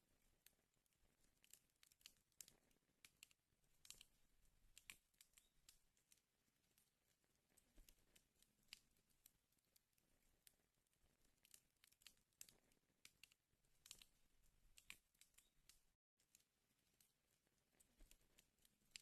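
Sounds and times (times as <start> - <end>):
wood fire crackling and popping: 1.4 - 6.8, 10.4 - 16.0.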